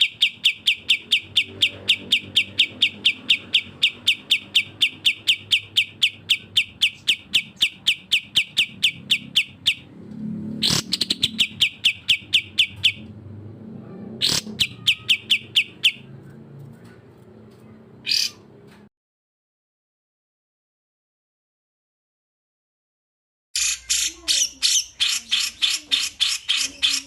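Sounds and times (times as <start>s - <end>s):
songbird chirping: 0.0s - 13.6s, 14.2s - 18.8s, 23.6s - 27.0s.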